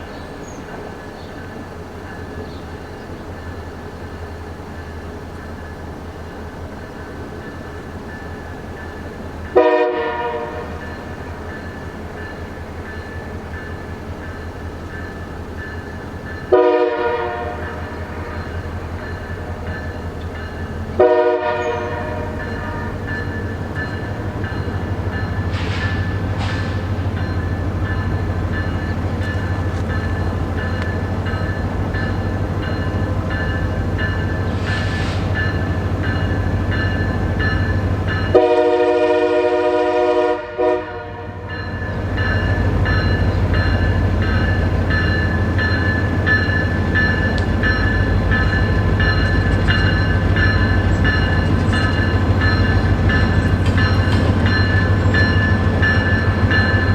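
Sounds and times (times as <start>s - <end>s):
locomotive engine rumble: 0.0s - 56.9s
locomotive air horn: 9.6s - 10.8s, 16.5s - 18.5s, 21.0s - 23.1s, 38.3s - 41.5s
light ticking: 46.6s - 55.0s.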